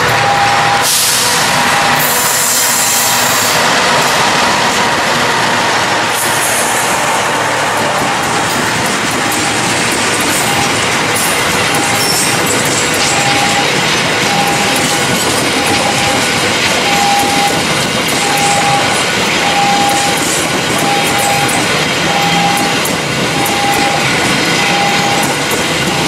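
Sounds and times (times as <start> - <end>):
passenger train passing: 0.0 - 26.0
on-off beeping tone: 8.0 - 10.9, 11.6 - 12.4, 13.0 - 17.6, 18.2 - 22.8, 23.4 - 26.0.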